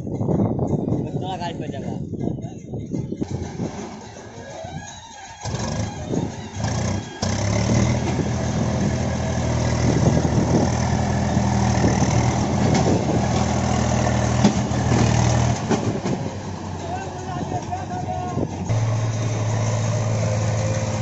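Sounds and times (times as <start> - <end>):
heavy diesel engine running: 5.4 - 21.0.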